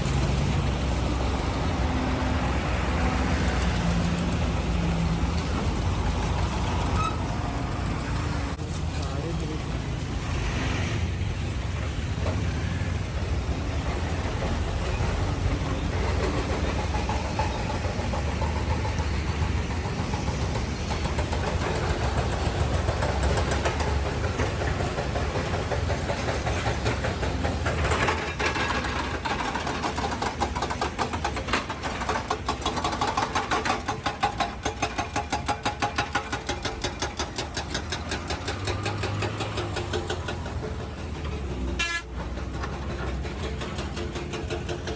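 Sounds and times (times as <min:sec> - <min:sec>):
vehicle engines in slow traffic: 0:00.0 - 0:44.9
engine chugging rapidly: 0:11.1 - 0:44.9.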